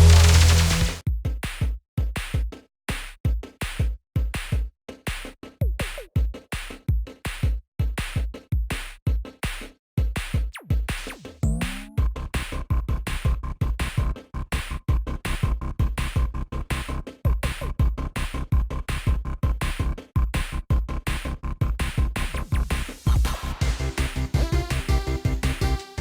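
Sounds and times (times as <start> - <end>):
deep bass thumps: 0.0 - 1.1, 11.4 - 25.8
electronic music with drum-machine beat: 0.0 - 26.0.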